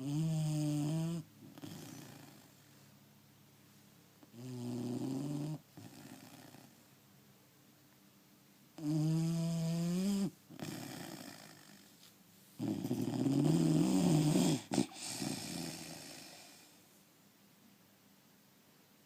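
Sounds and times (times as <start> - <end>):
dog snoring: 0.0 - 2.8, 4.2 - 6.8, 8.8 - 12.0, 12.6 - 16.8.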